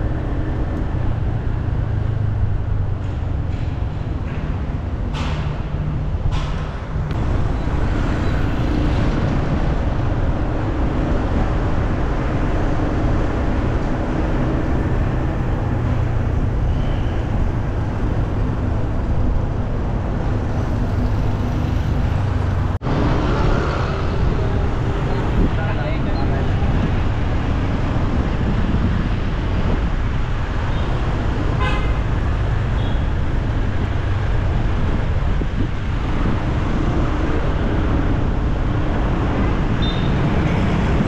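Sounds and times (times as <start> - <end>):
road traffic passing: 0.0 - 41.0.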